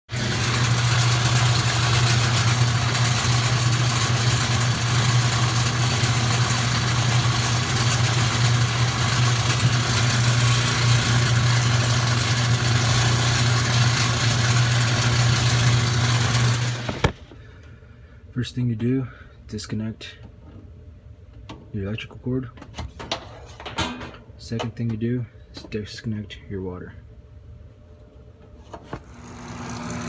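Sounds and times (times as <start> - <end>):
harsh noisy whir: 0.1 - 17.2
washing machine humming: 0.1 - 17.6, 28.8 - 30.0.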